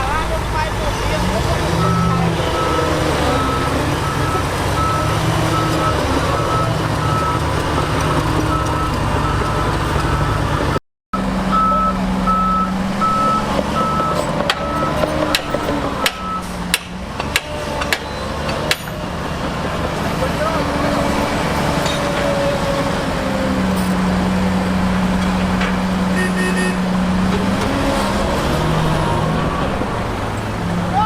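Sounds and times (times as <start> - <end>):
heavy diesel machinery running: 0.0 - 31.0
reversing alarm beeping: 1.8 - 7.5, 11.5 - 15.1, 16.0 - 16.5.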